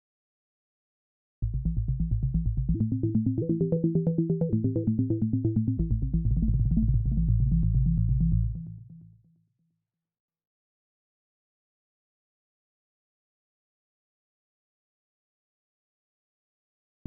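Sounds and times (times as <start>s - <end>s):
synthesizer arpeggio over bass notes: 2.3s - 9.0s.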